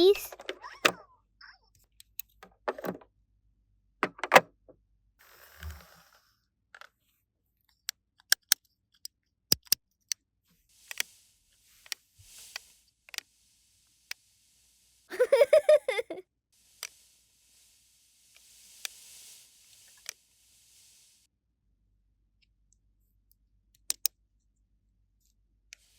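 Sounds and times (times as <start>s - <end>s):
plastic toy pieces clicking: 9.5s - 9.8s.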